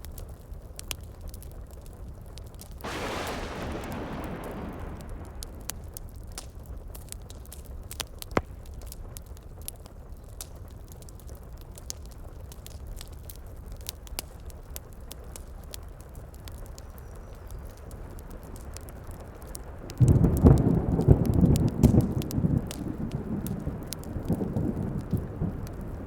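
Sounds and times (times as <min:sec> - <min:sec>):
steady rain: 0:00.0 - 0:26.0
wood fire crackling and popping: 0:00.0 - 0:26.0
thunder rumble: 0:02.8 - 0:07.0.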